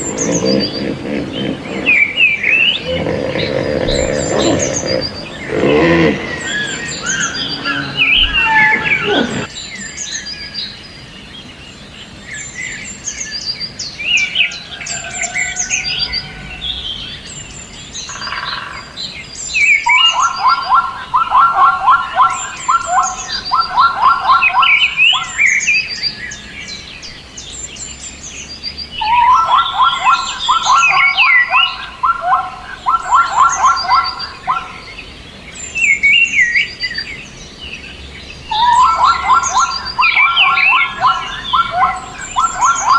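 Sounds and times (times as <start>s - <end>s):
low bird trill: 0.0s - 9.5s, 38.4s - 42.9s
birds chirping: 0.0s - 10.8s, 14.5s - 42.9s.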